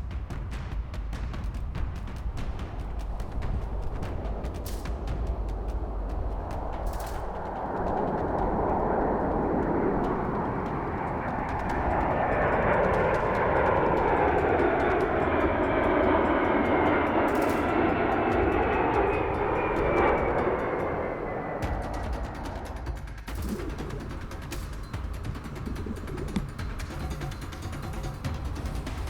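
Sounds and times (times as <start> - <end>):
aircraft flying past: 2.3 - 29.0
high whine falling in pitch: 3.2 - 22.5.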